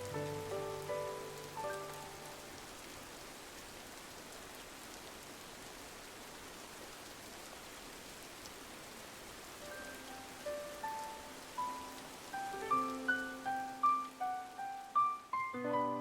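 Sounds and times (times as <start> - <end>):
soft music notes: 0.0 - 2.4, 9.6 - 16.0
rain on a window: 0.0 - 16.0.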